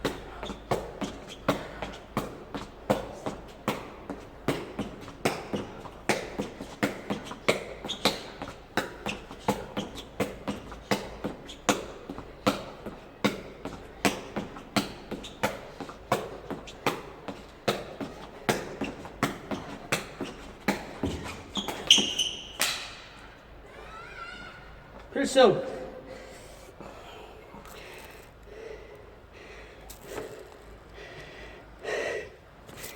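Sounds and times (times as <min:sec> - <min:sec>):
shuttlecock kicks tapping: 0:00.0 - 0:22.9.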